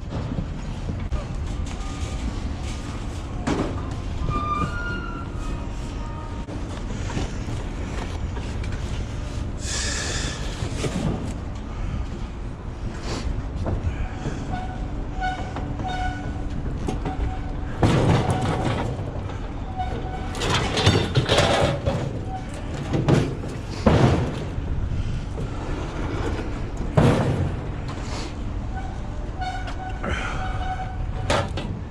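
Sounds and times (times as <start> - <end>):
low machinery rumble: 0.0 - 31.9
scrap metal clanking and scraping: 13.1 - 31.9.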